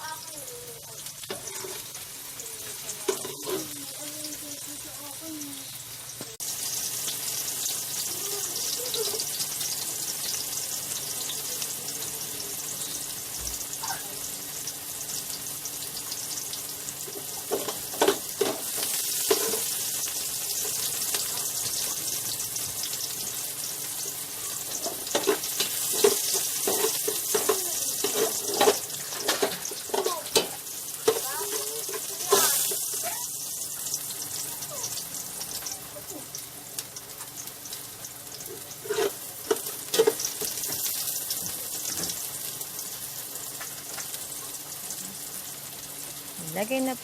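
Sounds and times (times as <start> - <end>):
food sizzling in hot oil: 0.0 - 47.0
spatula scraping a pan: 1.3 - 2.0, 3.0 - 3.8, 24.4 - 33.1, 38.4 - 40.8.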